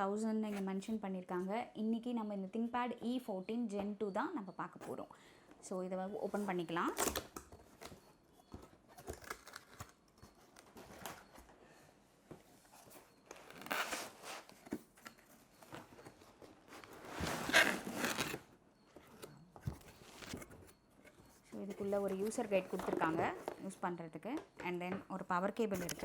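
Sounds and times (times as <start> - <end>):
cardboard box being opened: 15.8 - 18.4.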